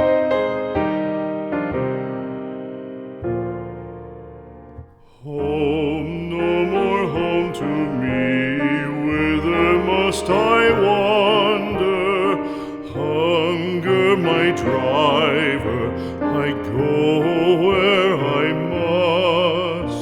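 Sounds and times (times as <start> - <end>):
piano accompaniment: 0.0 - 20.0
solo singer with vibrato: 5.0 - 20.0.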